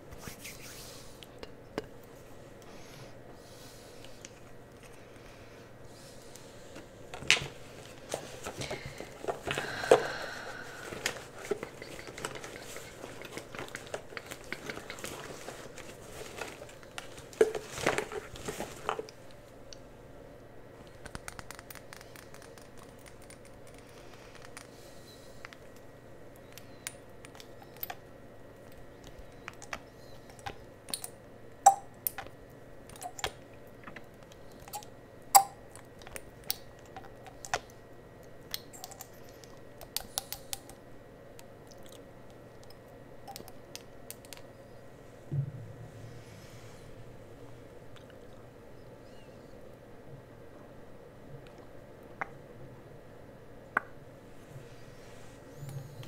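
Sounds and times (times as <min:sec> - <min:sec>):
faint steady hum: 0:00.0 - 0:56.0
containers rustling and scraping: 0:06.7 - 0:10.1, 0:10.7 - 0:19.2.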